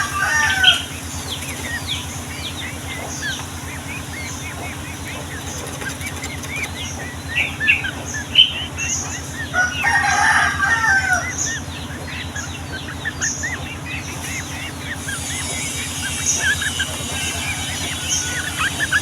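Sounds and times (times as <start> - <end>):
rooster crowing: 0.0 - 1.1, 9.4 - 11.6, 15.2 - 19.0
birds chirping busily: 0.0 - 19.0
low pulsing hum: 0.0 - 19.0.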